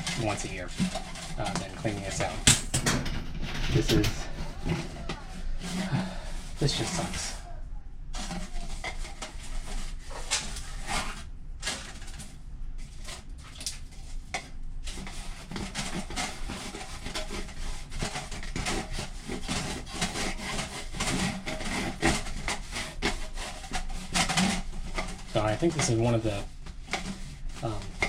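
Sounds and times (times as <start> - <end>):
scraping inside metal duct: 0.0 - 7.5, 8.1 - 28.0.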